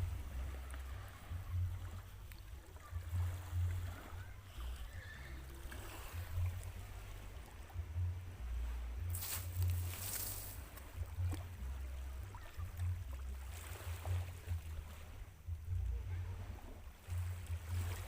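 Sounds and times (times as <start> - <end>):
faint hiss of water: 9.1 - 11.4.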